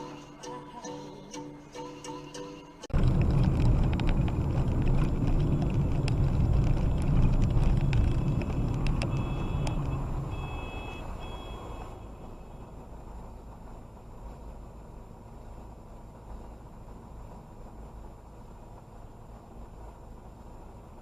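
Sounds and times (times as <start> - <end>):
heavy vehicle engine rumbling: 2.7 - 21.0
short electronic beeps: 9.1 - 12.0.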